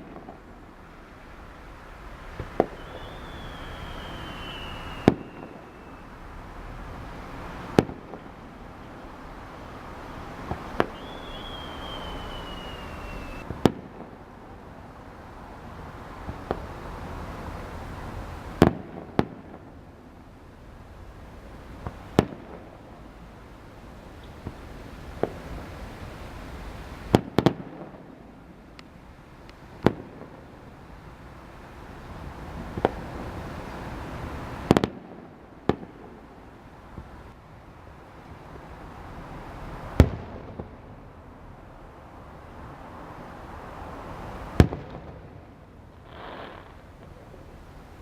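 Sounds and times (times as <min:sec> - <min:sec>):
fireworks bangs: 0:00.0 - 0:09.0, 0:09.6 - 0:14.6, 0:16.2 - 0:20.2, 0:21.7 - 0:23.0, 0:24.2 - 0:26.2, 0:26.9 - 0:28.4, 0:29.7 - 0:30.5, 0:32.1 - 0:36.3, 0:39.8 - 0:41.0, 0:44.5 - 0:47.5
steady rushing haze: 0:00.0 - 0:18.6
steady background hiss: 0:00.0 - 0:48.0.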